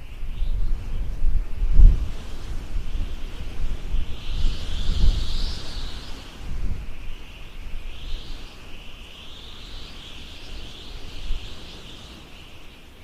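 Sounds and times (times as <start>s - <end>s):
high insect drone: 0.0s - 13.0s
wind rumbling on microphone: 0.0s - 13.0s.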